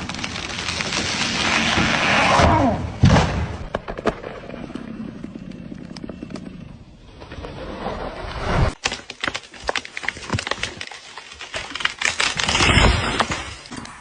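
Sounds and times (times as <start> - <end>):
wood snapping cracks: 0.0 - 2.0, 8.8 - 13.9.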